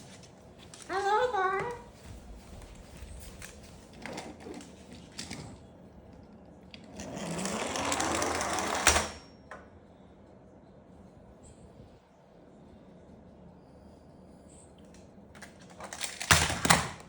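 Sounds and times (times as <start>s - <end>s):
toy truck mechanical whir: 6.8s - 9.2s.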